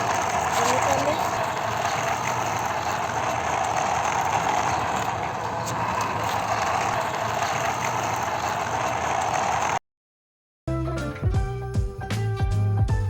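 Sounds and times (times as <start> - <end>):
toy motor and gears whirring: 0.0 - 9.8.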